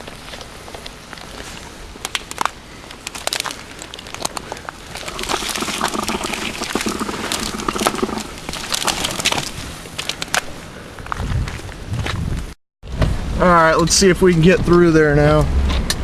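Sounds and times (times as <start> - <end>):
heavy rain crackling: 4.8 - 10.2.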